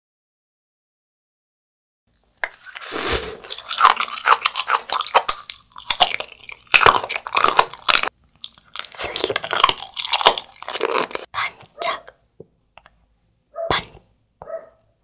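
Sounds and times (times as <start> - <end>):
crunchy chewing and biting: 2.5 - 11.7.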